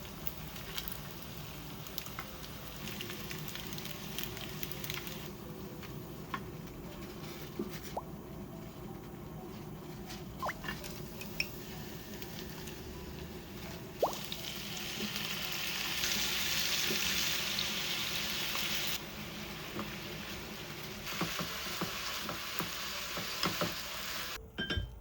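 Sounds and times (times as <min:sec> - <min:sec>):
food sizzling in a frying pan: 0:00.0 - 0:05.4, 0:10.7 - 0:24.4.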